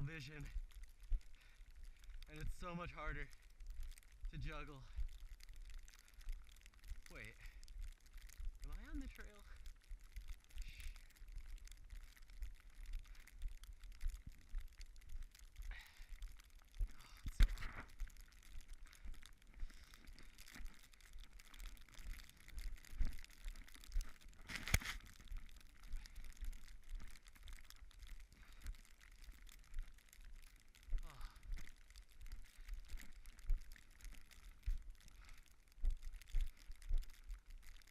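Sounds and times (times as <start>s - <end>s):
running footsteps in snow: 16.8s - 27.4s.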